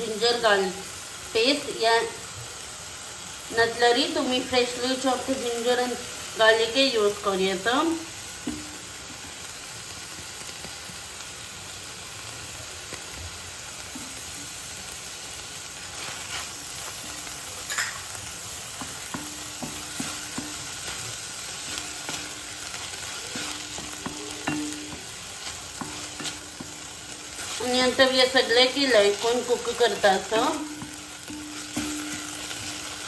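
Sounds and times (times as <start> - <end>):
vegetables sizzling in oil: 0.0 - 33.0
spatula scraping and tapping pan: 8.4 - 9.5, 13.8 - 14.7, 15.9 - 33.0.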